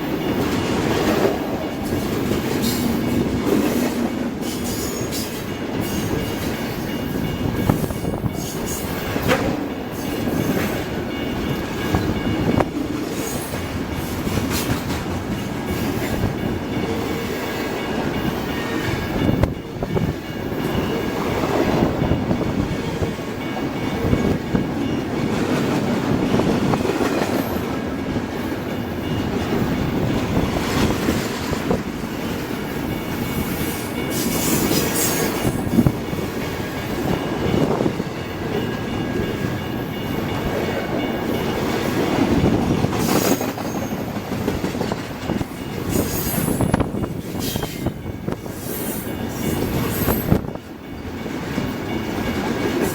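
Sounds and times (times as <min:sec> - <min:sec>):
train wheels rumbling on rail: 0:00.0 - 0:52.9
wheels clicking over rail joints: 0:07.6 - 0:47.8.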